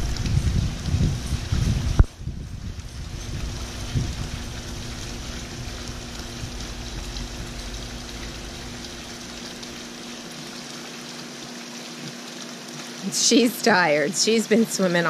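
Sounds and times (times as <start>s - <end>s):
low rumble: 0.0s - 9.9s
steady low hum: 0.0s - 11.5s
water pouring into pool: 0.0s - 13.9s.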